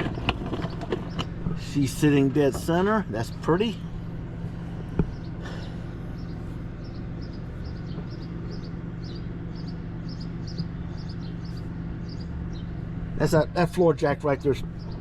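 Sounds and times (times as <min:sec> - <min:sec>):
steady low hum: 0:00.0 - 0:15.0
small bird chirping: 0:05.1 - 0:12.8.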